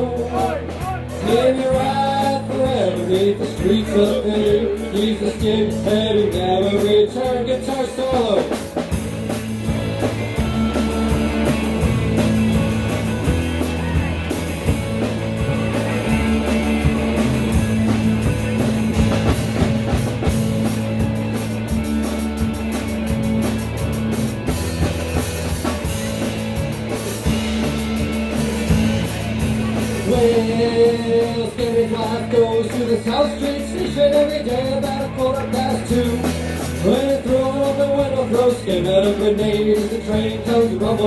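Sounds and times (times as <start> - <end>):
driving drum kit: 0.0 - 41.0
live rock band playing: 0.0 - 41.0
guitar solo: 9.7 - 30.2.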